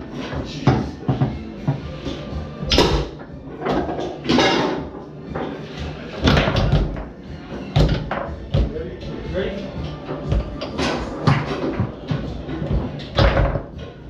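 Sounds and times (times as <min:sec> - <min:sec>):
foosball ball knocks and clacks: 0:00.6 - 0:05.5, 0:06.2 - 0:07.1, 0:07.8 - 0:08.7, 0:10.2 - 0:13.9.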